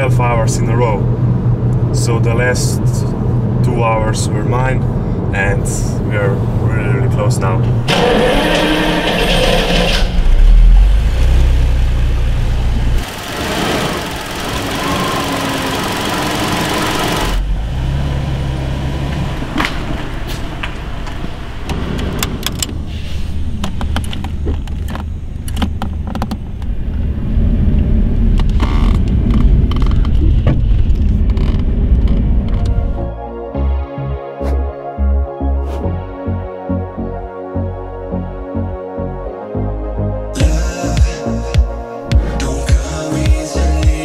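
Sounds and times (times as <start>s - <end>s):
car engine running: 7.7s - 22.8s.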